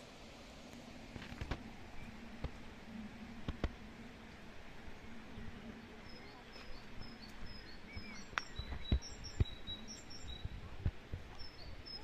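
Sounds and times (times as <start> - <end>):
bird chirping: 5.0 - 10.6, 11.3 - 12.0.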